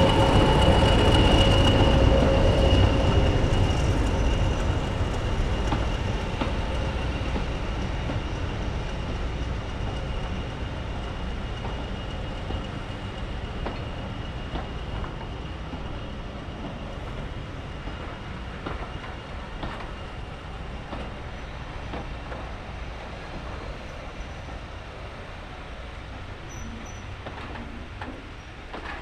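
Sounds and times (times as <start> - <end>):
railway carriage rumble: 0.0 - 29.0
wheel clicks over rail joints: 27.2 - 29.0.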